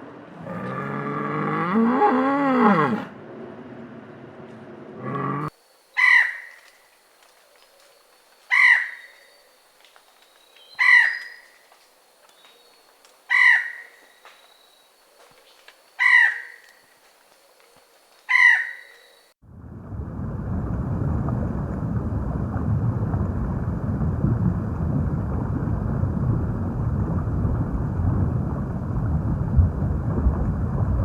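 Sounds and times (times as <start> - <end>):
crow cawing: 6.0 - 6.9, 7.8 - 9.3, 10.8 - 11.8, 13.3 - 14.5, 15.9 - 16.9, 18.3 - 19.2.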